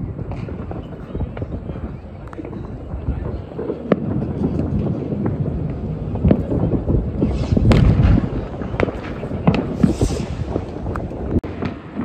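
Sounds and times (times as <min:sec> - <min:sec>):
firework booms: 0:00.0 - 0:12.0
fireworks crackling bangs: 0:00.0 - 0:12.0
low rumble: 0:00.0 - 0:12.0
rocket hisses: 0:07.2 - 0:11.2.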